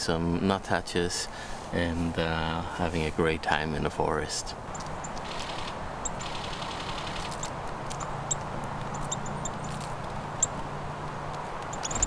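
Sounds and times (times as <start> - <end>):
soft forest hush: 1.0 - 11.8
small birds calling: 4.6 - 12.0.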